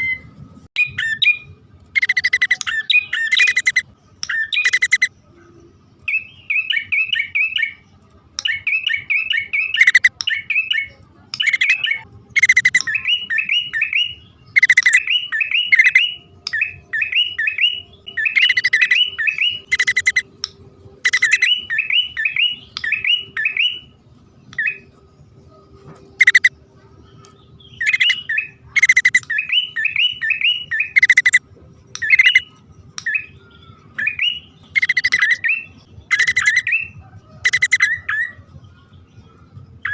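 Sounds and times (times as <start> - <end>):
bird rising chirps: 0.8 - 5.1, 8.5 - 10.8, 11.4 - 20.4, 21.0 - 24.0, 26.1 - 26.5, 27.4 - 31.4, 32.0 - 38.4.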